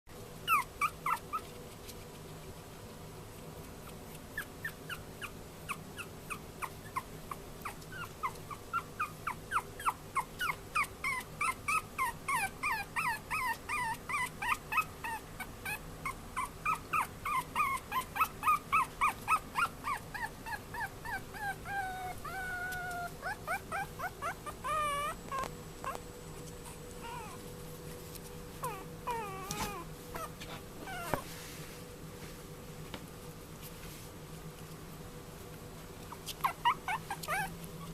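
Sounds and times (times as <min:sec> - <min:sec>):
puppy whimpering and yelping: 0:00.4 - 0:01.7, 0:03.8 - 0:27.5, 0:28.6 - 0:31.3, 0:36.0 - 0:37.9.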